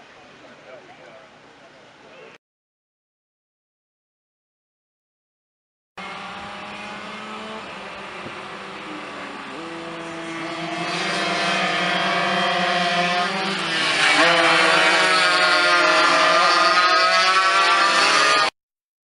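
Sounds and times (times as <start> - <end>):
go-kart engine revving: 6.0 - 18.6.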